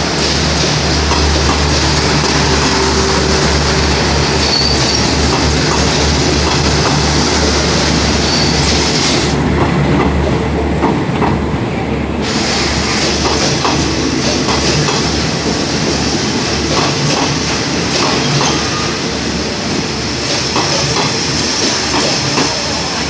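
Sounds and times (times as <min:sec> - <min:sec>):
wheels clacking over rail joints: 0:00.0 - 0:10.2, 0:13.0 - 0:18.9, 0:20.2 - 0:22.7
train rumble: 0:00.0 - 0:23.0
high-pitched wheel squeal: 0:04.3 - 0:05.2, 0:08.2 - 0:08.8.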